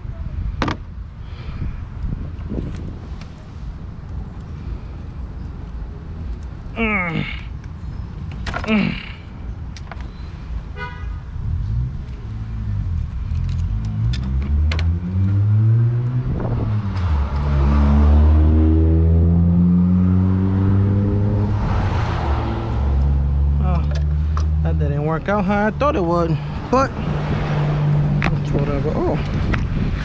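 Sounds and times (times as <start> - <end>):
wind and road noise: 0.0 - 30.0
car engine accelerating: 11.6 - 24.9.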